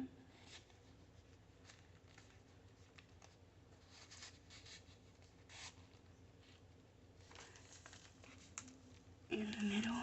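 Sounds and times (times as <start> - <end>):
paper rustling and tapping: 0.5 - 5.3.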